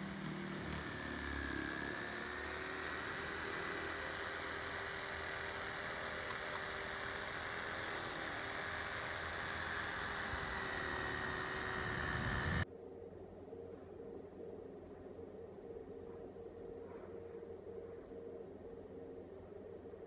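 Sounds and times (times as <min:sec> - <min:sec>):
electric power tool motor: 0:00.0 - 0:12.6.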